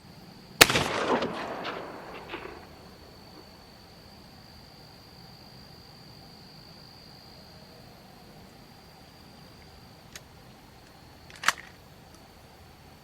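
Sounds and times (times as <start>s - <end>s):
sharp loud bang: 0.6s - 3.4s.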